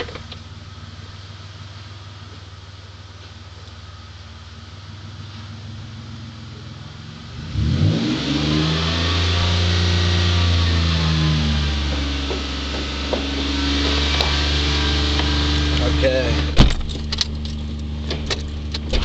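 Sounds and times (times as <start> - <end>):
car engine revving: 3.8 - 19.0.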